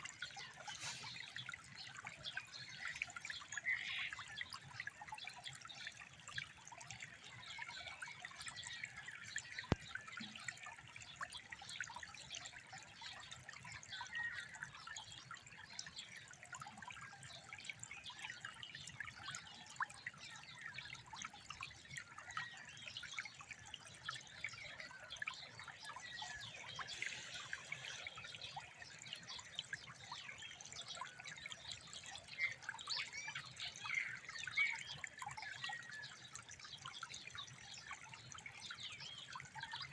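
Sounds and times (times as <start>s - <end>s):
water trickling and burbling: 0.0s - 39.9s
small splashes: 23.3s - 31.6s.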